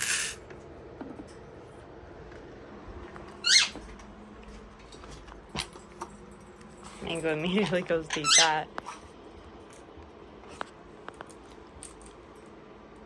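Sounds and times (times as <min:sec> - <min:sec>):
parrot chirp: 0:03.4 - 0:03.8, 0:08.1 - 0:08.6.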